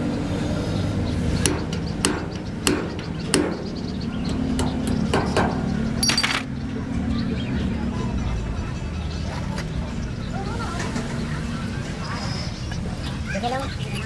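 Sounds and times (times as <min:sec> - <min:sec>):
ringing clink: 0:06.0 - 0:06.5.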